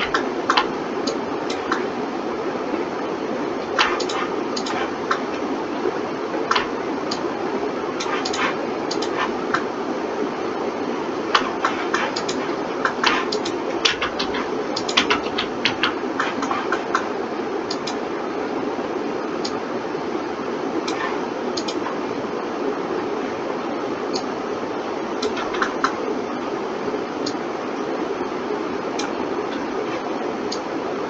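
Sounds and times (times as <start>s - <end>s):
computer mouse and keyboard clicking: 0.0s - 1.9s, 3.6s - 5.5s, 6.5s - 7.2s, 8.0s - 9.7s, 11.3s - 17.1s, 17.7s - 18.0s, 20.9s - 22.0s, 25.2s - 26.0s, 29.0s - 30.7s
computer fan hum: 0.0s - 31.0s.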